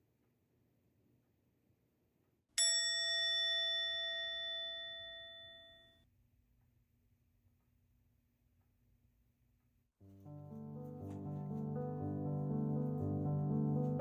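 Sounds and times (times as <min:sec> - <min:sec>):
bell-like chime ringing: 0:02.6 - 0:06.0.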